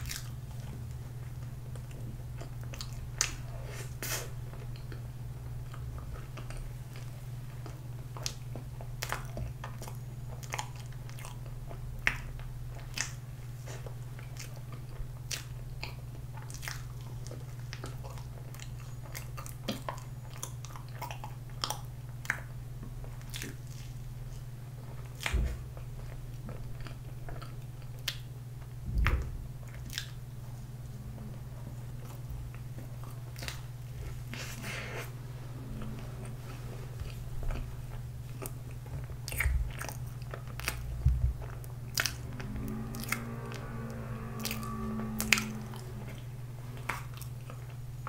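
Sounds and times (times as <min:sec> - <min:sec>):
wet chewing and smacking: 0:00.0 - 0:35.0, 0:35.7 - 0:45.9, 0:46.8 - 0:48.0
steady low hum: 0:00.0 - 0:48.0
dull low thumps: 0:28.8 - 0:33.0, 0:40.8 - 0:46.9.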